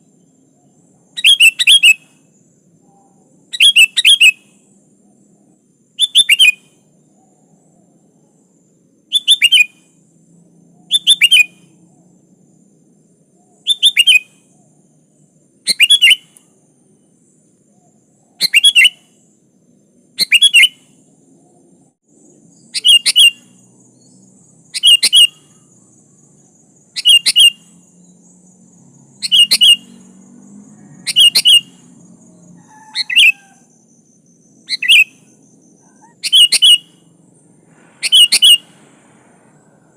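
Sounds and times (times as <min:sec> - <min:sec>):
bulbul calling: 0:00.6 - 0:02.2, 0:02.8 - 0:04.5, 0:06.0 - 0:07.5, 0:09.1 - 0:09.8, 0:10.8 - 0:11.8, 0:13.4 - 0:14.8, 0:15.6 - 0:16.4, 0:17.7 - 0:19.4, 0:20.2 - 0:21.0, 0:22.5 - 0:25.8, 0:26.8 - 0:30.2, 0:31.0 - 0:37.1, 0:38.0 - 0:38.8.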